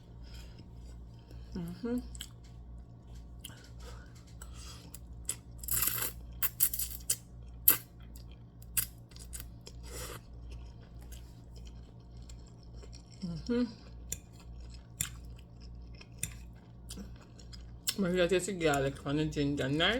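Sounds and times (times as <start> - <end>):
low hum: 0.0 - 19.9
chewing with clicks: 2.1 - 18.0.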